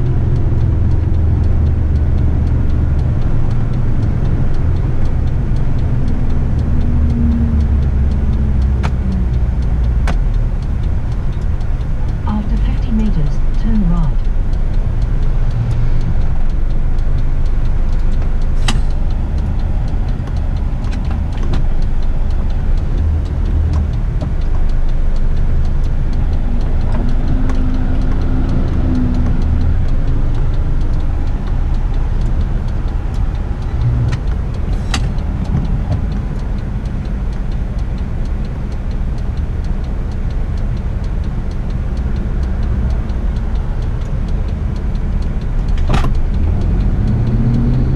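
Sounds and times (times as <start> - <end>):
diesel truck engine rumbling: 0.0 - 47.9
sharp clicks: 0.1 - 47.9.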